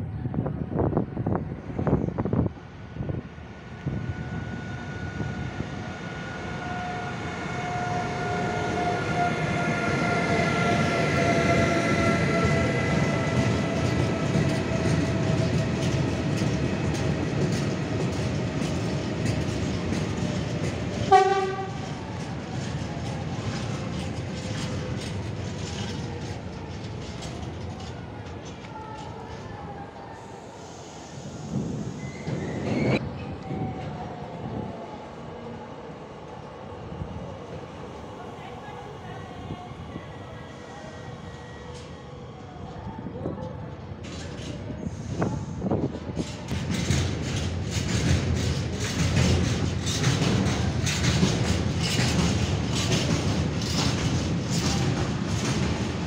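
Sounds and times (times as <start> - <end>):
electric locomotive whine: 0.0 - 56.0
train horn toot: 6.5 - 13.1, 21.0 - 21.9
freight wagons rumbling: 12.3 - 29.4, 46.2 - 56.0
wheels clattering over rail joints: 46.2 - 56.0.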